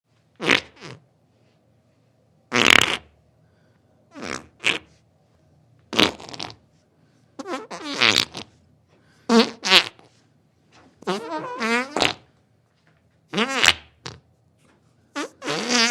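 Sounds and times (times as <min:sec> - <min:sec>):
sputtering fart-like bursts: 0:00.4 - 0:01.0, 0:02.5 - 0:03.1, 0:04.1 - 0:04.9, 0:05.9 - 0:06.6, 0:07.4 - 0:08.6, 0:09.3 - 0:10.1, 0:11.0 - 0:12.3, 0:13.3 - 0:14.2, 0:15.1 - 0:15.9.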